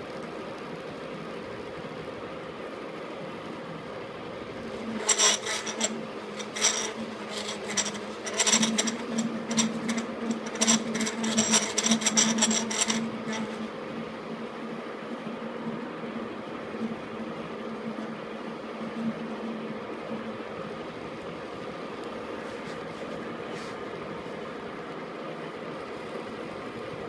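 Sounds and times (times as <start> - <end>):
cutting tool scraping metal: 4.8 - 13.7
metal lathe humming: 4.8 - 13.7.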